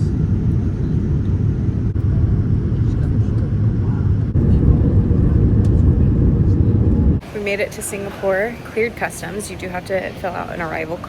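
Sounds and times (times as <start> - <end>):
vehicle low rumble: 0.0 - 7.3.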